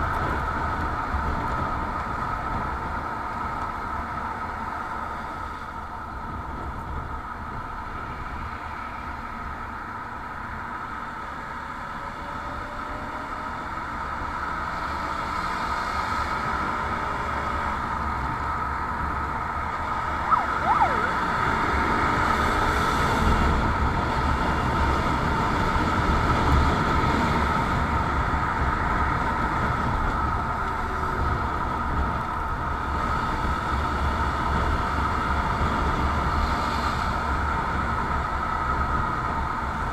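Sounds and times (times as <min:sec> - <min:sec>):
short whistle-like glide: 0:20.2 - 0:21.3.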